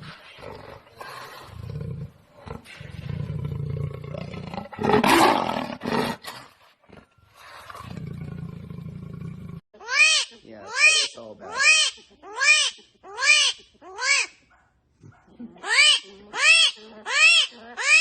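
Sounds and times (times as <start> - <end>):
large animal growling: 0.0 - 9.6.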